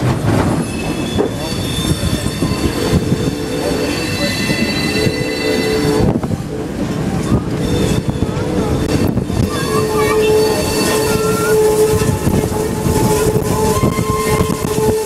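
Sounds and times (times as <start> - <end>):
train car rumbling on rails: 0.0 - 15.0
high-pitched wheel squeal: 0.6 - 6.0, 9.0 - 15.0.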